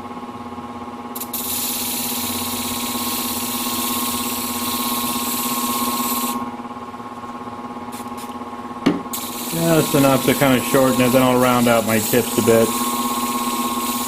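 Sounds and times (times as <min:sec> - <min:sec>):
sharpening machine hum: 0:01.2 - 0:08.4, 0:09.1 - 0:14.0
blade grinding hiss: 0:09.1 - 0:14.0.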